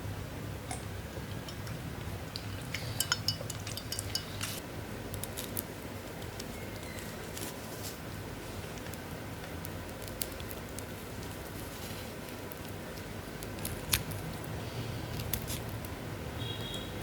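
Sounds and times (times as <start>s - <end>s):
low steady hum: 0.0s - 17.0s
cutlery and dishes clinking: 2.4s - 4.6s.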